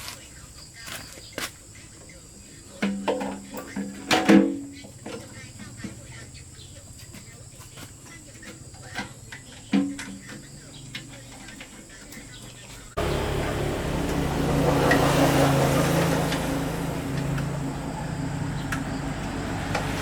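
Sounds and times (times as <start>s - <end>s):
generator engine running: 13.0s - 20.0s.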